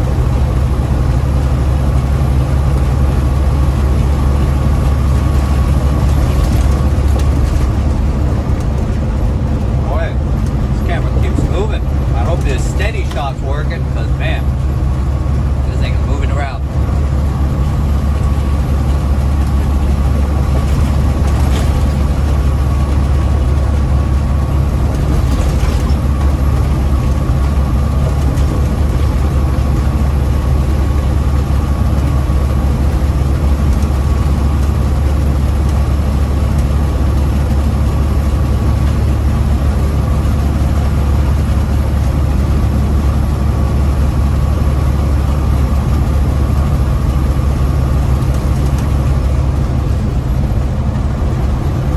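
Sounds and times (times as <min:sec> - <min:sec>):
faint whine: 0:00.0 - 0:32.7
truck diesel engine drone: 0:00.0 - 0:51.9.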